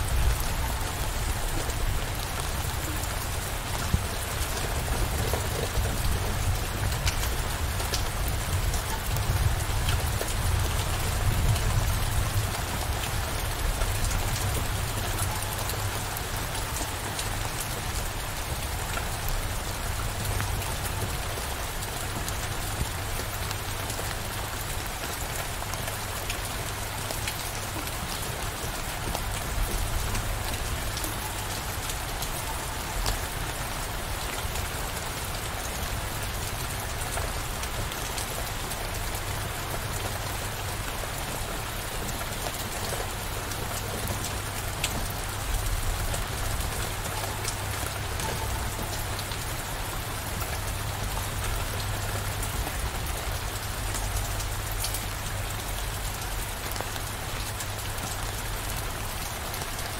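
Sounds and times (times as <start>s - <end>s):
steady rain: 0.0s - 59.9s
raindrop ticks: 0.2s - 18.3s, 41.2s - 59.8s.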